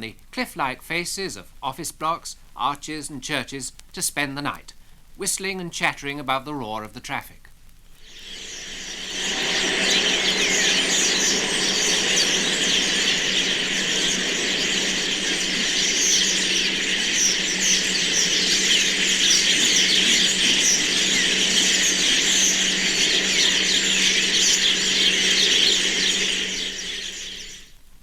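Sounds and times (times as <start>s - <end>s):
starlings whistling and chattering: 8.0s - 27.7s.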